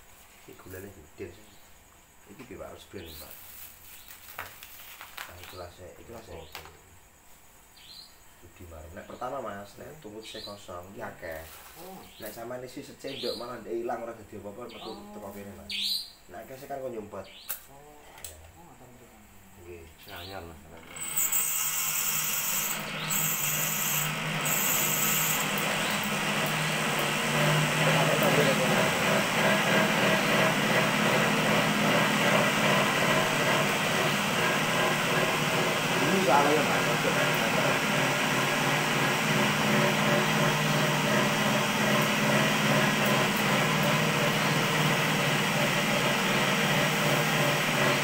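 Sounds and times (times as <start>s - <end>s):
cotton candy machine hum: 20.7s - 48.0s.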